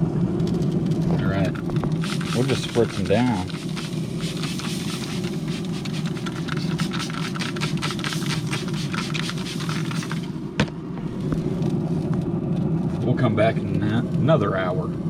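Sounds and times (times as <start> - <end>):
steady low rumble: 0.0 - 15.0
spray bottle spritzing: 1.4 - 10.4.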